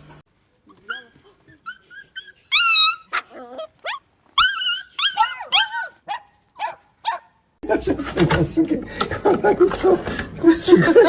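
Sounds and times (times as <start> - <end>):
dog whimpering and yipping: 0.7 - 7.2.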